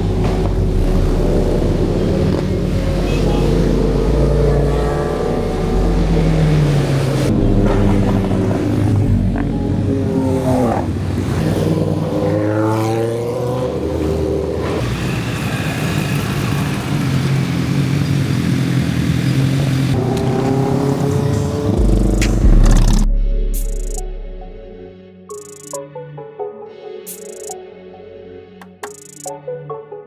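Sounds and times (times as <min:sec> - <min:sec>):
motorbike engines revving: 0:00.0 - 0:23.1.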